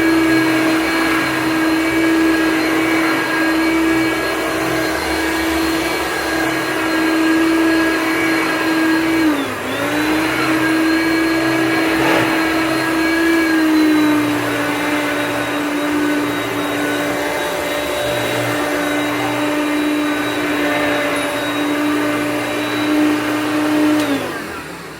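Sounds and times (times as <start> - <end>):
vacuum cleaner motor whine: 0.0 - 24.9.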